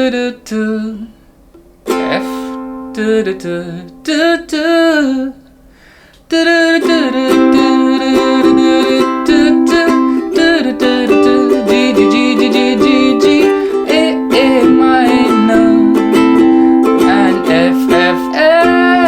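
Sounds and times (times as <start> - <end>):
ukulele strumming chords: 1.6 - 5.2, 6.4 - 19.0
person speaking briefly: 1.9 - 2.6.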